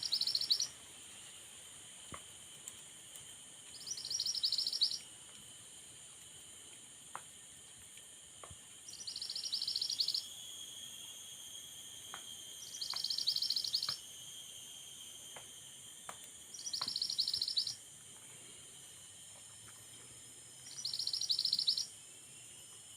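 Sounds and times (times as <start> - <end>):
bird rattling trill: 0.0 - 0.7, 12.6 - 14.0, 16.5 - 17.8, 20.7 - 21.9
high-pitched background drone: 9.0 - 22.8.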